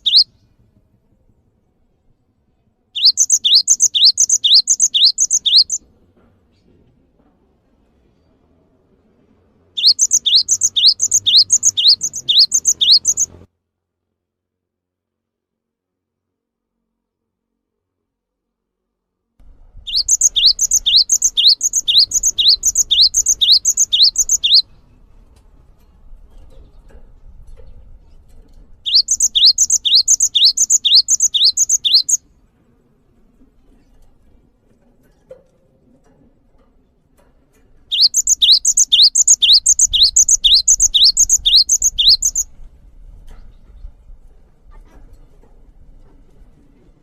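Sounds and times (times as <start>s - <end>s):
bird chirping: 0.0s - 0.4s, 3.0s - 5.8s, 9.8s - 13.4s, 19.8s - 24.8s, 28.8s - 32.2s, 37.9s - 42.5s.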